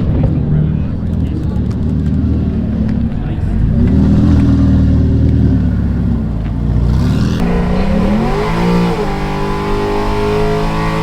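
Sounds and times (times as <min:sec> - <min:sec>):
car engine revving hard: 0:03.4 - 0:11.0.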